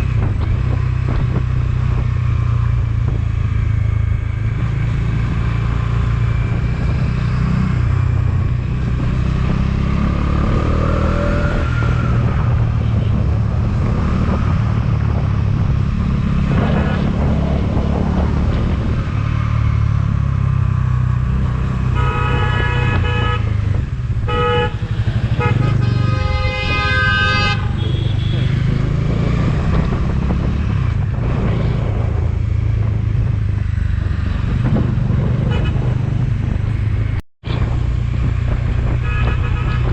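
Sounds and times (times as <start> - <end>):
motorcycle engine rumble: 0.0 - 39.9
road noise: 0.0 - 39.9
vehicle horn honking: 21.9 - 23.5, 24.3 - 28.5, 35.5 - 35.8, 39.0 - 39.9.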